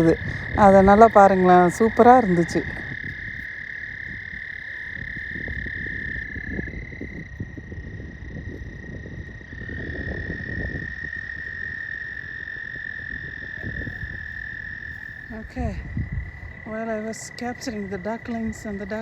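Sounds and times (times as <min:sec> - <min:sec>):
frogs trilling: 0:00.0 - 0:19.0
low rumble: 0:12.8 - 0:19.0.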